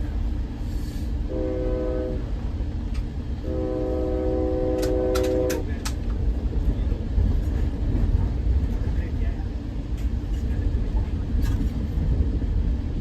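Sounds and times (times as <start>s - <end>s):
low rumble of moving train: 0.0s - 13.0s
train horn blasts: 1.3s - 2.4s, 3.4s - 5.7s.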